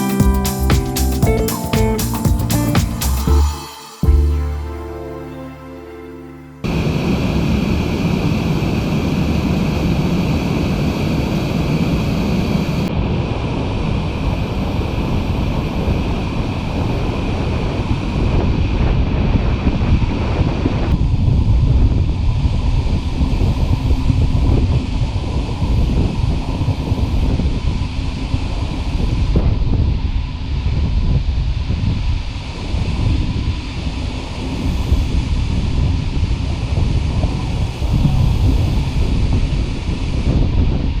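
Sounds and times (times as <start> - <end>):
wind noise on microphone: 6.6 - 41.0.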